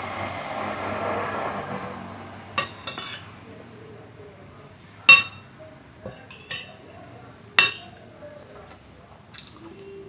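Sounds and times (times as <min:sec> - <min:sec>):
cutlery clinking against plate: 0:02.6 - 0:03.3, 0:05.1 - 0:07.0, 0:07.6 - 0:08.0.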